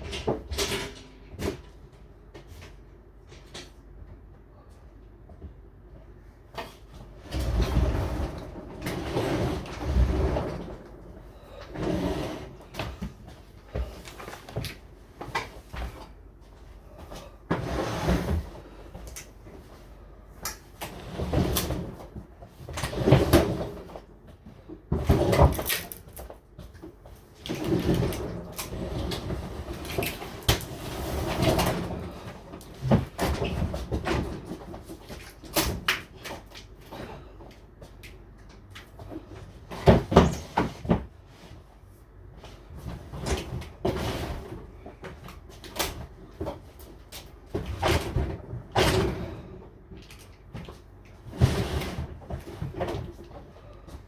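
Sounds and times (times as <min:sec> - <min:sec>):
refrigerator scraping and bumping: 0:06.6 - 0:16.2, 0:16.8 - 0:19.0, 0:20.7 - 0:24.2, 0:24.8 - 0:37.4, 0:38.9 - 0:49.8, 0:50.5 - 0:54.0.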